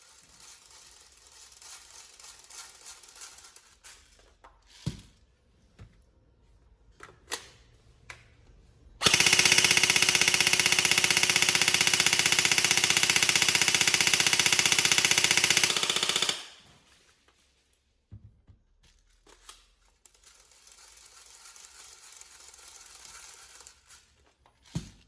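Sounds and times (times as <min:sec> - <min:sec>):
airsoft gun full-auto burst: 0:09.0 - 0:16.8.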